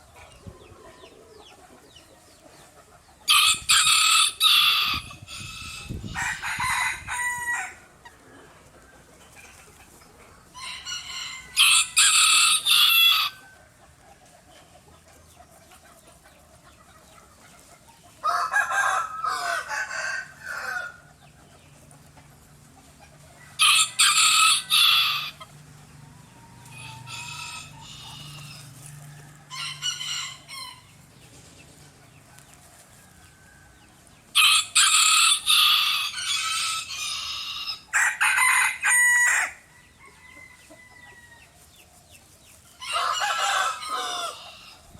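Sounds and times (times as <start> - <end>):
rooster crowing: 3.3 - 7.8, 10.6 - 13.4, 18.2 - 21.0, 23.4 - 25.4, 26.2 - 30.8, 34.4 - 41.6, 42.8 - 44.7.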